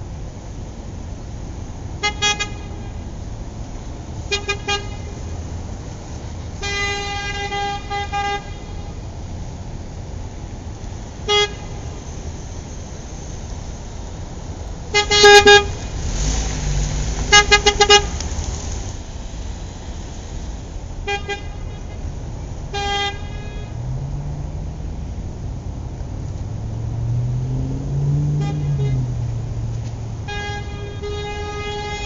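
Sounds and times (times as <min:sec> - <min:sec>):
road noise: 0:00.0 - 0:32.0
car horn beeps: 0:02.0 - 0:03.0, 0:04.3 - 0:05.2, 0:11.2 - 0:12.0, 0:14.9 - 0:16.2, 0:17.2 - 0:18.2, 0:22.7 - 0:23.9, 0:28.2 - 0:29.2, 0:30.2 - 0:32.0
car engine rising in pitch: 0:15.2 - 0:20.7, 0:23.7 - 0:30.8.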